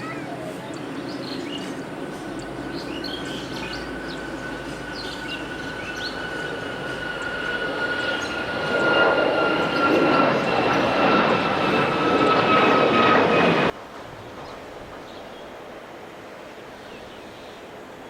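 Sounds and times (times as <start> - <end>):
jet engines whining: 0.0 - 13.8
rushing engine rumble: 0.7 - 13.8.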